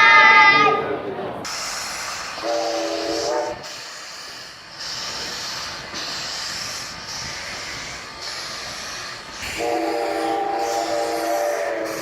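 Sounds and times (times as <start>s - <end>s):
steam hissing bursts: 1.4s - 12.0s
steam locomotive whistle: 2.3s - 6.2s, 9.4s - 12.0s.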